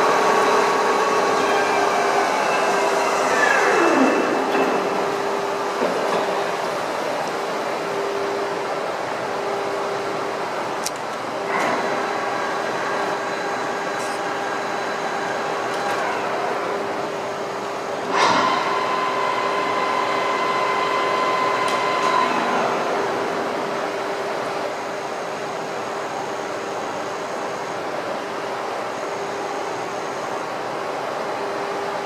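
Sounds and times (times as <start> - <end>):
lathe humming: 0.0 - 25.2.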